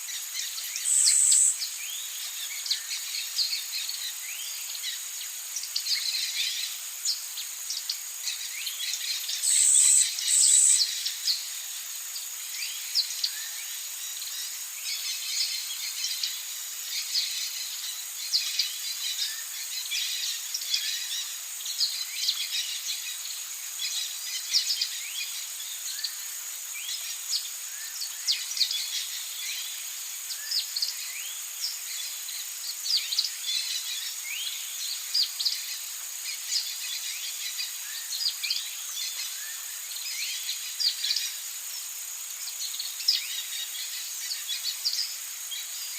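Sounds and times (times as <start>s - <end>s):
insects droning: 0.0s - 45.9s
birds chirping: 0.4s - 11.6s.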